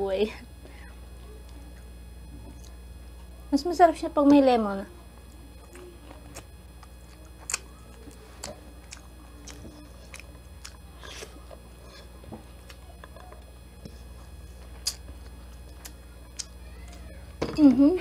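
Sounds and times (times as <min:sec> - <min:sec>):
person chewing food: 0:05.3 - 0:17.1.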